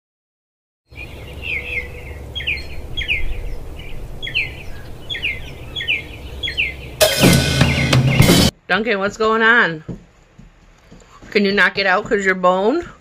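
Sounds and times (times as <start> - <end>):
bird chirping: 0.9 - 8.5.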